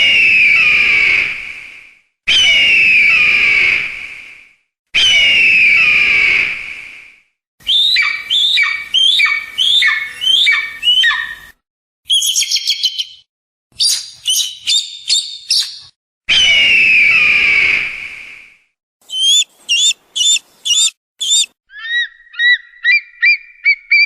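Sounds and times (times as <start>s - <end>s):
eagle screaming: 5.0s - 6.5s, 7.6s - 11.5s, 19.1s - 24.0s
eagle chirping: 7.6s - 11.5s, 12.1s - 13.2s, 13.8s - 15.9s, 19.0s - 24.0s.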